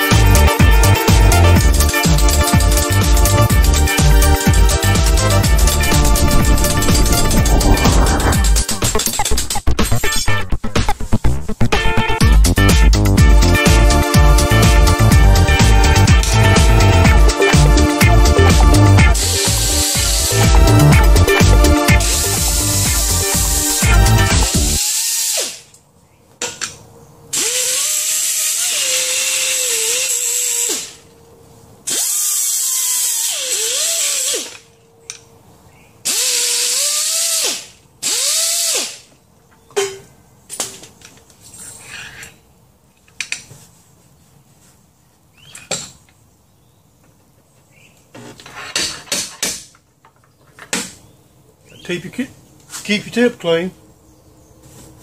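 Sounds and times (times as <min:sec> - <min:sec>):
air tool hissing whine: 0:19.2 - 0:25.7
tools clicking and knocking: 0:48.2 - 0:51.0.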